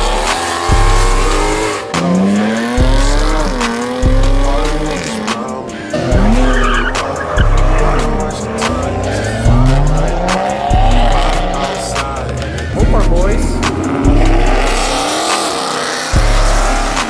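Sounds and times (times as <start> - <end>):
car engines revving: 0.0 - 17.0
music with deep bass hits: 0.0 - 17.0
tyres squealing: 5.9 - 12.8.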